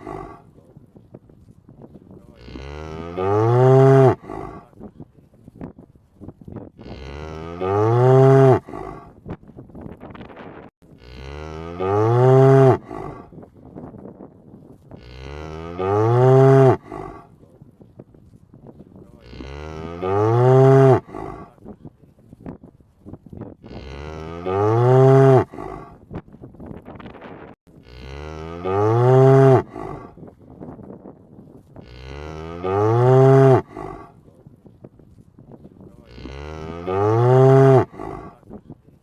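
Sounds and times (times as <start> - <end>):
cow mooing: 2.3 - 4.7, 6.8 - 9.1, 11.0 - 13.3, 15.0 - 17.3, 19.2 - 21.6, 23.6 - 26.0, 27.8 - 30.1, 31.8 - 34.1, 36.0 - 38.4.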